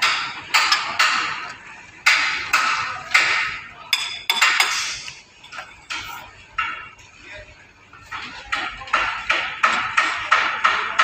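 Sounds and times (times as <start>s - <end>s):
hammer striking steel: 0.0s - 1.4s, 2.0s - 5.1s, 8.5s - 11.0s.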